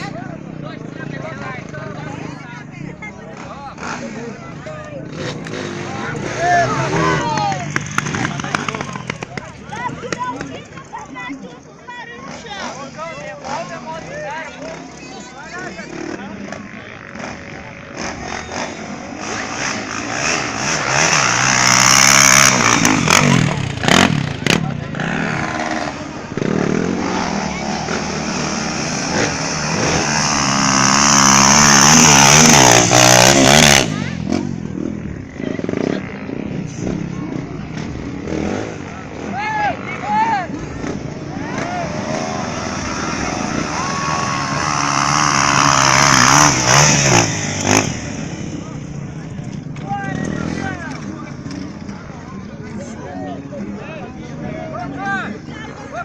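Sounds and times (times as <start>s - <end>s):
motorcycle engine revving: 0.0s - 11.0s, 12.2s - 52.8s.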